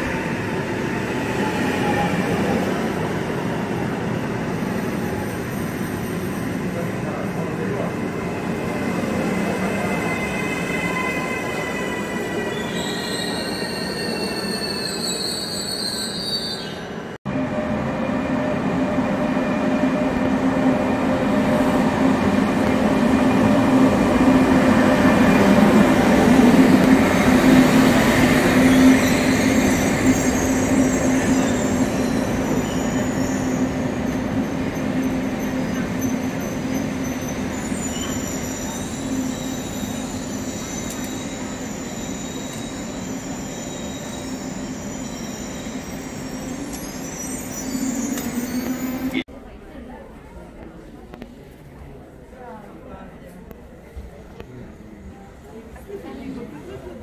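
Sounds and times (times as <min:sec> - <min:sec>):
train wheel squeal: 0:09.4 - 0:17.1, 0:27.0 - 0:49.2
train hum and rumble: 0:16.8 - 0:43.4.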